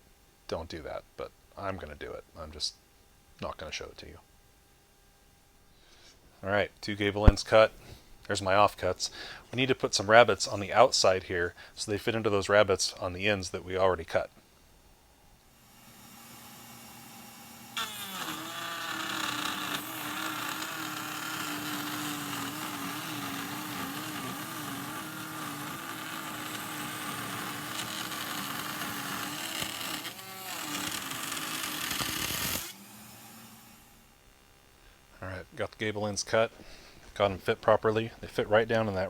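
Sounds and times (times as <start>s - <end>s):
router whining while cutting wood: 15.5s - 35.1s.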